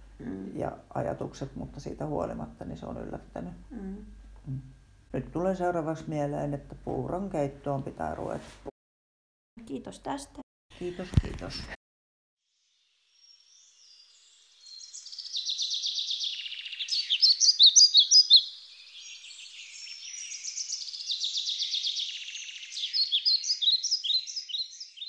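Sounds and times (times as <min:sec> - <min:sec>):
songbird trilling: 0:14.6 - 0:25.0.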